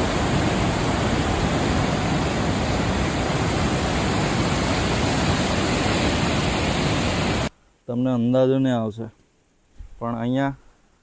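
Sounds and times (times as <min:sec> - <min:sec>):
fast-flowing water rushing: 0:00.0 - 0:07.5.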